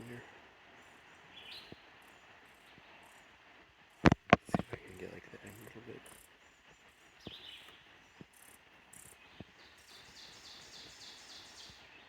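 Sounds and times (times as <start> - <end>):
insects calling in pulses: 0.0 - 12.0.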